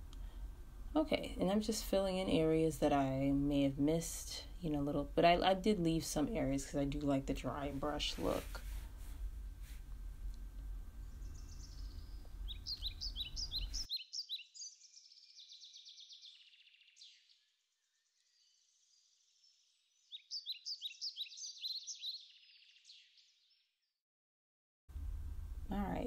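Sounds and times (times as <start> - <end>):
faint low hum: 0.0 - 13.9, 24.9 - 26.0
songbird chirping and trilling: 11.0 - 23.9.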